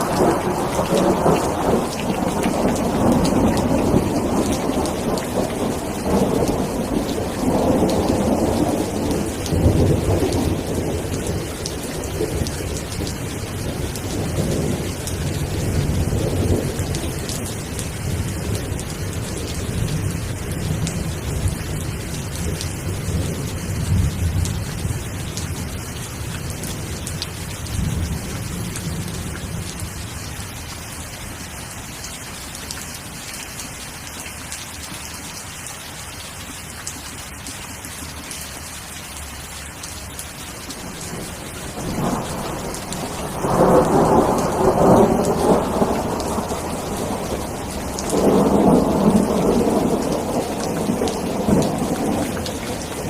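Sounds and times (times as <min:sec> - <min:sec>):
thunder rumbling: 0:00.0 - 0:29.9, 0:40.8 - 0:53.0
rain falling: 0:00.0 - 0:53.0.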